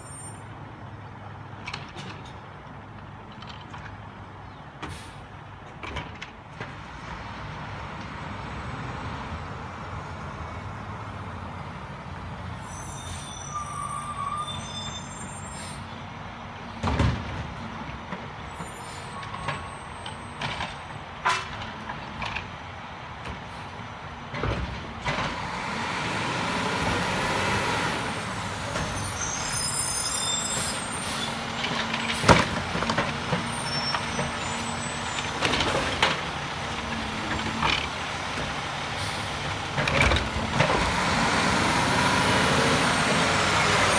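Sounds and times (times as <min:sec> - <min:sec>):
garbage truck engine hum: 0:15.5 - 0:43.9.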